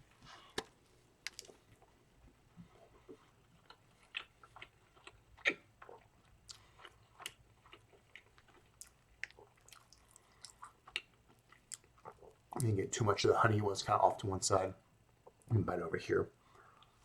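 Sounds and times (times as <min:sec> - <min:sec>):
person chewing food: 0:00.0 - 0:12.7
wet mouth clicks: 0:03.7 - 0:06.6.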